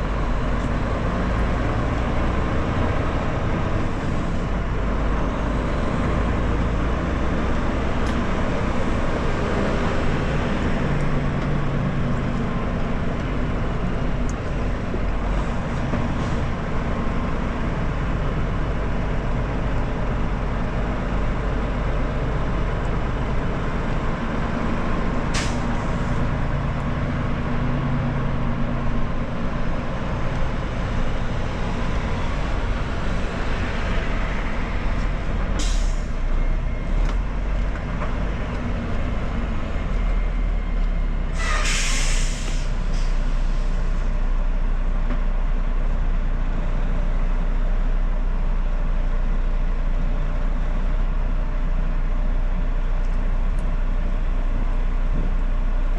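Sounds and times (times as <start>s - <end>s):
diesel truck engine running: 0.0s - 55.9s
air brake hissing: 25.3s - 26.1s, 35.6s - 36.2s, 41.4s - 44.0s.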